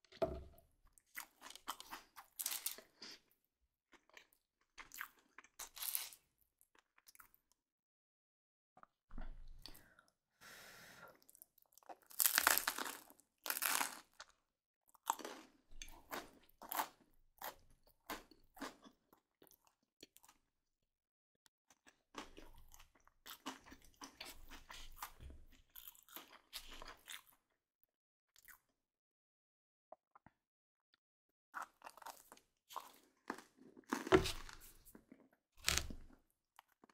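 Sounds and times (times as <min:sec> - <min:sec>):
crunching bread crust: 0:03.9 - 0:06.9, 0:11.6 - 0:14.4.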